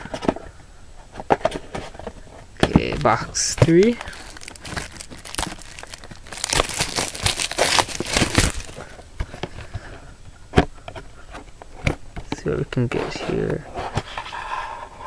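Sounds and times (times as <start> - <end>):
plastic wrapping crinkling: 2.9 - 9.0.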